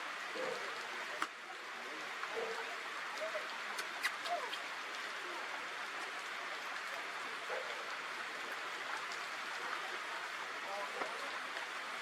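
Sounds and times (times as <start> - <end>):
steady rain hissing: 0.0 - 12.0.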